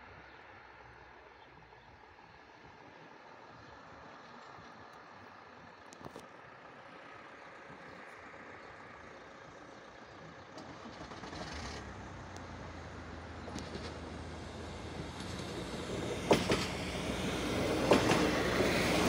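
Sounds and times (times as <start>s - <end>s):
passenger train approaching: 8.2s - 19.0s.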